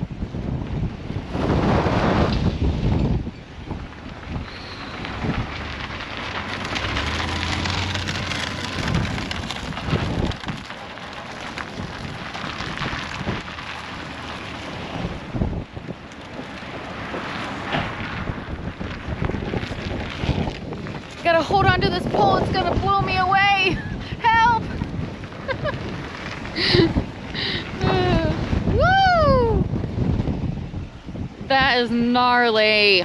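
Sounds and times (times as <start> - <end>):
wind gusting on microphone: 0.0 - 33.0
dense rain-like hiss: 23.1 - 31.6.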